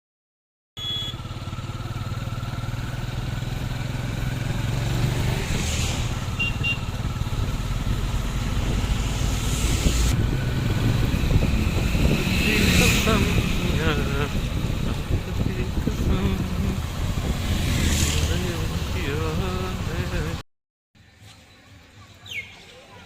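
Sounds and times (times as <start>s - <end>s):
short high beeps: 0.8s - 1.3s
motorcycle engine running: 0.8s - 20.4s
road and wind noise: 0.8s - 20.4s.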